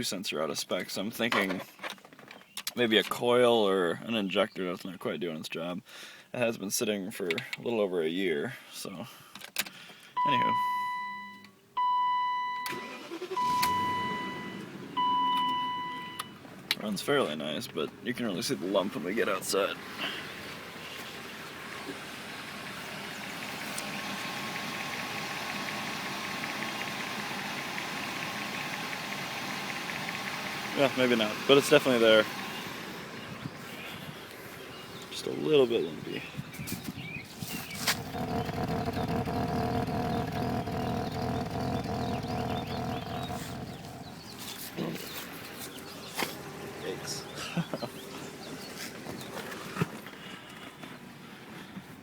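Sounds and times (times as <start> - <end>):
car engine rough idling: 13.0 - 51.9.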